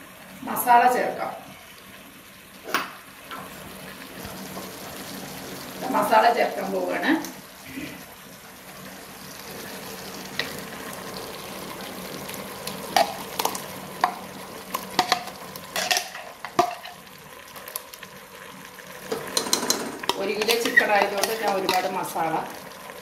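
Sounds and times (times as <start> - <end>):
food sizzling in a pressure cooker: 0.0 - 23.0
spoon knocking against metal: 19.4 - 21.8.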